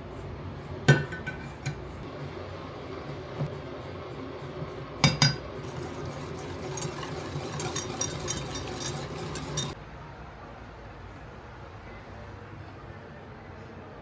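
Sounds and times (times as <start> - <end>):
dough being stirred: 5.0 - 9.8
utensil clinking on mixing bowl: 5.0 - 9.8.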